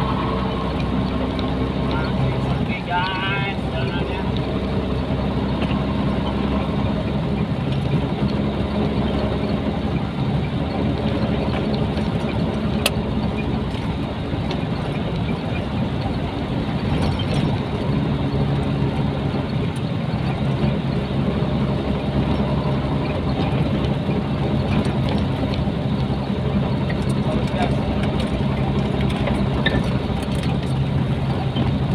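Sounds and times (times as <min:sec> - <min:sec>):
truck diesel engine droning: 0:00.0 - 0:31.9.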